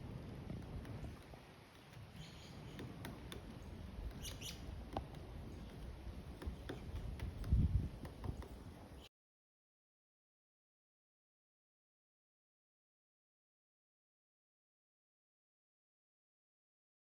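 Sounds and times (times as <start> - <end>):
woodpecker pecking at wood: 0.5 - 8.9
high bird chirp: 4.2 - 4.7.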